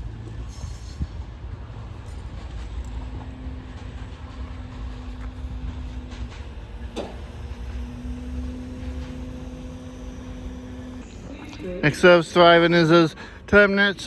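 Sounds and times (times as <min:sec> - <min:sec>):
steady hum: 0:00.0 - 0:14.0
train engine rumble: 0:00.0 - 0:14.0.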